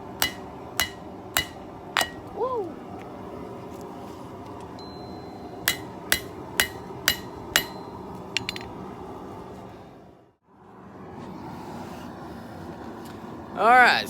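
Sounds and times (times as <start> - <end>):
hammer striking steel on anvil: 0.0 - 2.3, 4.8 - 8.8.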